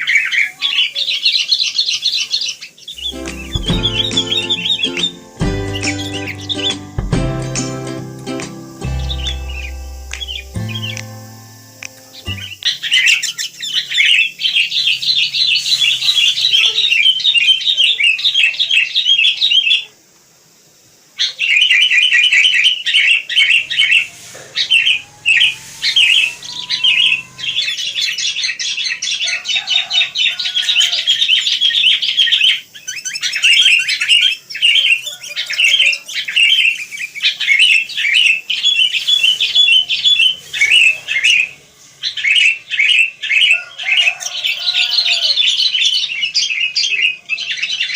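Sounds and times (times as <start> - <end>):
bulbuls chattering: 2.9 - 17.5, 23.4 - 28.5, 38.9 - 43.0.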